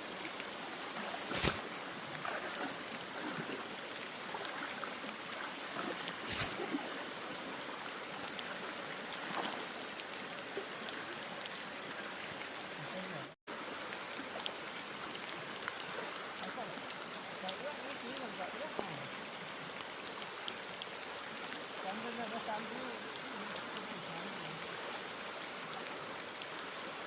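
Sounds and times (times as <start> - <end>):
stream water rushing: 0.0 - 27.0.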